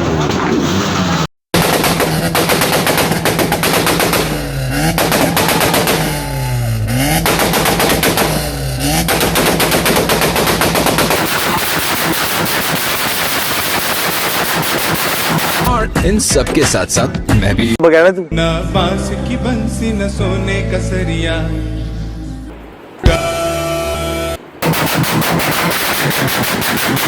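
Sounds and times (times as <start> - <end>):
car engine on launch limiter: 0.0 - 15.7
exhaust popping and backfiring: 0.0 - 15.7, 24.6 - 27.0.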